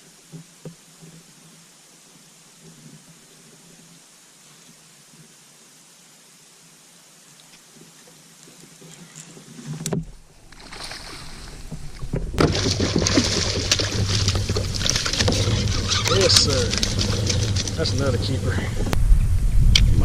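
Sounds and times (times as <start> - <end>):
water splashing: 7.4 - 19.2.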